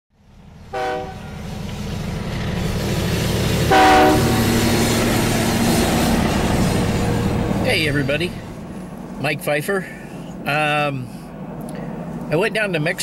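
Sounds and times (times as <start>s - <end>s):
train rumbling: 0.2s - 13.0s
locomotive horn blasts: 0.7s - 1.4s, 3.6s - 4.6s.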